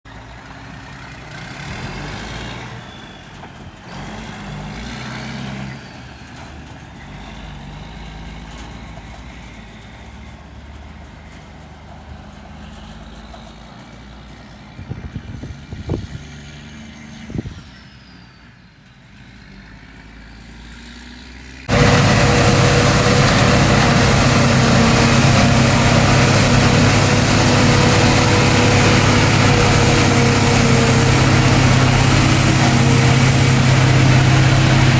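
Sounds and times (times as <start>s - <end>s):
harvest machinery engines running: 21.7s - 34.9s
loud engine drone: 21.7s - 34.9s.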